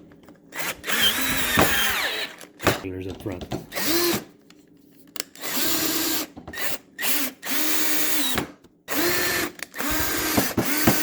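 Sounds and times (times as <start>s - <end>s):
cordless drill driving screws: 0.5s - 2.8s, 3.7s - 4.3s, 5.4s - 11.0s.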